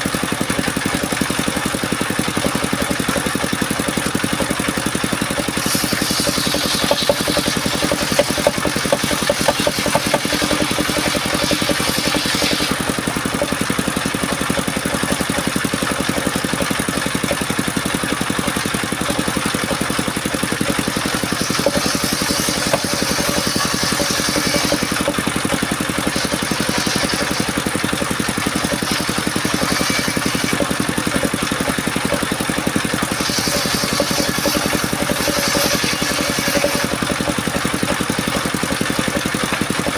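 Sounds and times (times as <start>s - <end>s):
sawmill engine running: 0.0s - 39.9s
saw blade hissing through wood: 5.4s - 14.2s, 20.8s - 25.2s, 25.8s - 27.8s, 28.4s - 31.3s, 33.0s - 39.0s.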